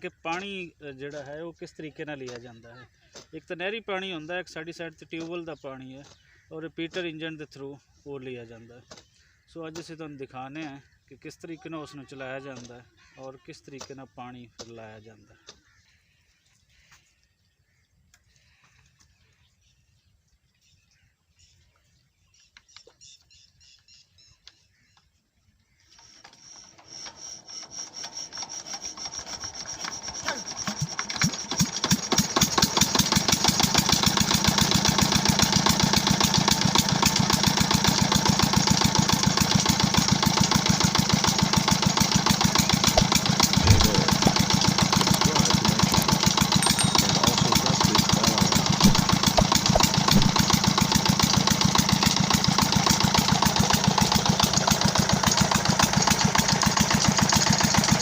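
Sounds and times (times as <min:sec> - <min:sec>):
diesel engine starting up: 0:26.3 - 0:58.0.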